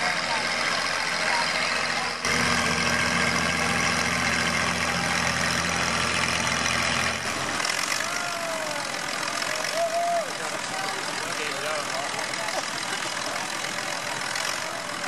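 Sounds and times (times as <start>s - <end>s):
outdoor background noise: 0.0s - 15.0s
tractor engine idling: 0.0s - 15.0s.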